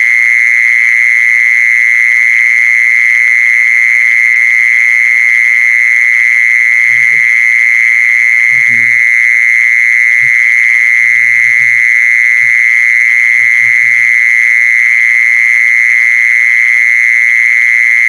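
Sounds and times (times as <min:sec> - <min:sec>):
insect buzzing call: 0:05.6 - 0:18.0.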